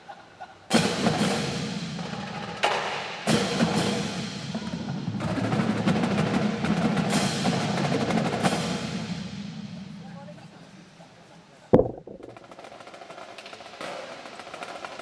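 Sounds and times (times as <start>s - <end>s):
marching drum line cadence: 0.7s - 15.0s.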